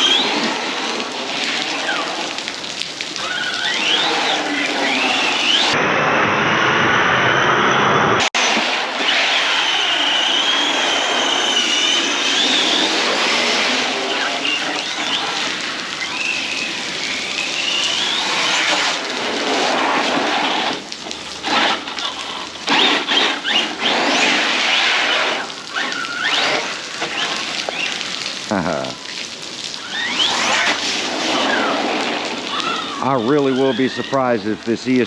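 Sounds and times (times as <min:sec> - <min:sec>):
toy truck motor whining: 0:00.0 - 0:01.0, 0:03.2 - 0:05.8, 0:08.4 - 0:18.9, 0:21.5 - 0:28.0, 0:29.8 - 0:34.0
water splashing: 0:00.0 - 0:05.8, 0:08.3 - 0:35.0
rain: 0:00.0 - 0:07.3, 0:08.1 - 0:35.0.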